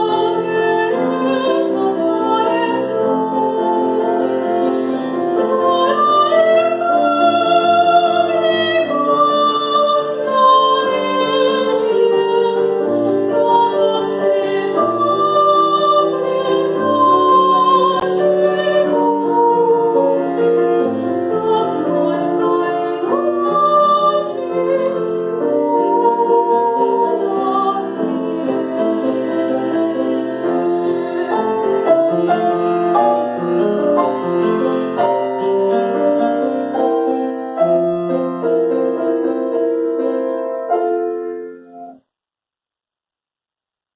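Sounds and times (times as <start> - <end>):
woman singing classical: 0.0 - 33.4
piano accompaniment: 0.0 - 42.0.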